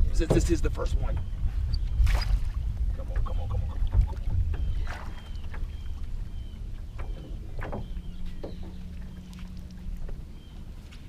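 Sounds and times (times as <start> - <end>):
low rumble: 0.0 - 11.0
low steady hum: 0.0 - 11.0
knocks on boat: 0.2 - 1.3, 6.9 - 8.8
water splashing: 2.0 - 11.0.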